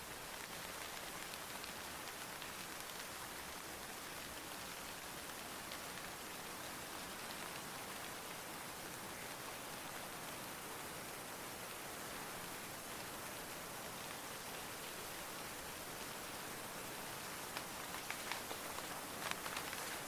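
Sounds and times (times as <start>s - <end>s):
steady rainfall: 0.0s - 20.0s
individual raindrops ticking: 17.3s - 20.0s.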